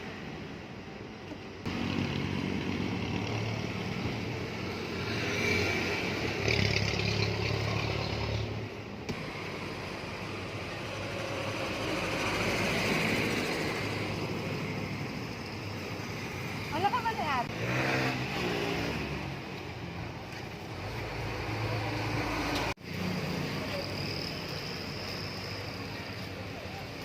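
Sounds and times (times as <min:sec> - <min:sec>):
traffic passing: 0:00.0 - 0:27.0.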